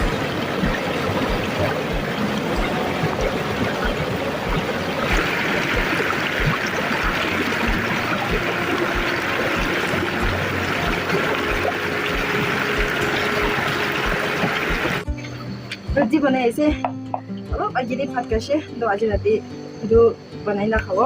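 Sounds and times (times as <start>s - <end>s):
low regular thump: 0.0s - 15.1s
stream water running: 0.0s - 16.5s.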